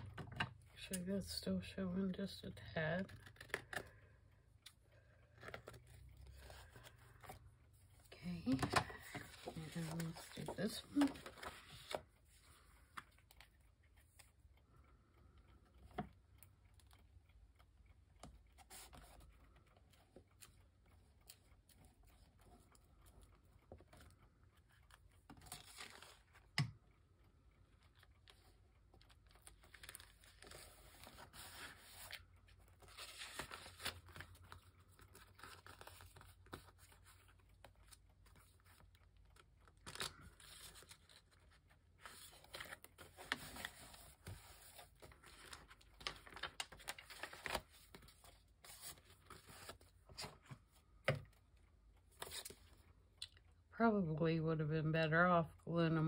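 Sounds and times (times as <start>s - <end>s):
paper rustling: 8.3s - 13.5s, 28.3s - 50.8s.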